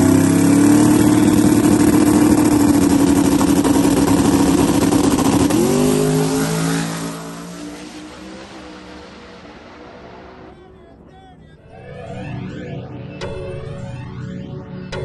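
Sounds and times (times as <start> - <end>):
race car engine at full throttle: 0.0 - 11.1.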